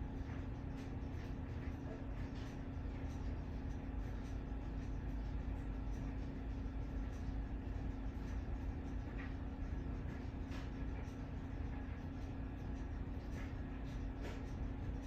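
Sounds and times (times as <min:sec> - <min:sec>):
ceiling fan motor hum: 0:00.0 - 0:15.0.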